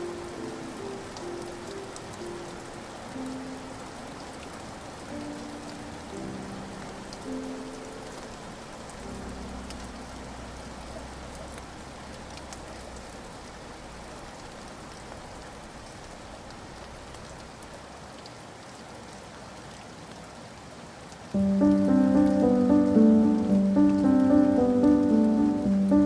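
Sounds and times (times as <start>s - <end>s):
steady rain falling: 0.0s - 26.0s
faint low music tone: 21.4s - 26.0s.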